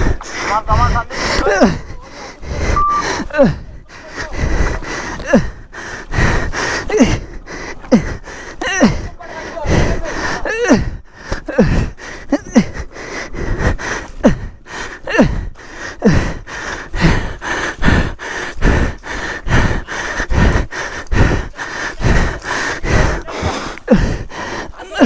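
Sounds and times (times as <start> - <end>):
person panting: 0.0 - 25.0.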